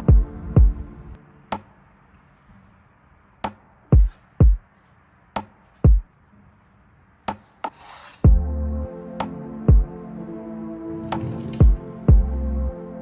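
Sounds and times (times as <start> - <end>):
short hiss: 7.4 - 8.3
vocal music with deep hits: 8.3 - 12.8.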